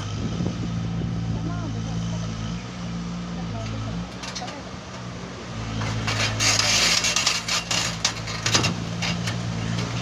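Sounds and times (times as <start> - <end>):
engine running steadily: 0.0 - 10.0
rustling and clattering: 5.8 - 10.0.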